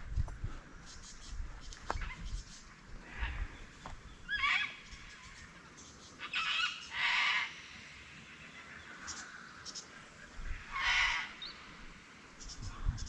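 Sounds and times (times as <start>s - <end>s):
harsh bird squawks: 4.3s - 5.3s, 6.2s - 7.6s, 10.6s - 11.5s.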